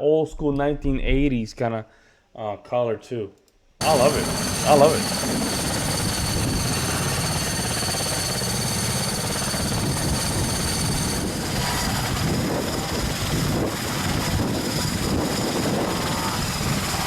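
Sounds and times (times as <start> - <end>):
helicopter engines whining: 3.8 - 17.0
helicopter rotor beating: 3.8 - 17.0.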